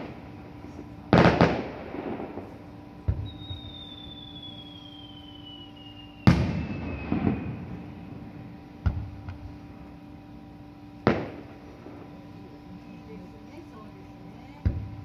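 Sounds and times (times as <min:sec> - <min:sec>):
falling firework whistle: 0:00.0 - 0:09.3
fireworks crackling: 0:00.0 - 0:10.1, 0:10.9 - 0:15.0
sharp firework crack: 0:01.1 - 0:02.5, 0:03.1 - 0:07.8, 0:11.0 - 0:11.6
firework booms: 0:01.1 - 0:04.6, 0:06.2 - 0:08.0, 0:08.8 - 0:09.4, 0:11.0 - 0:12.1.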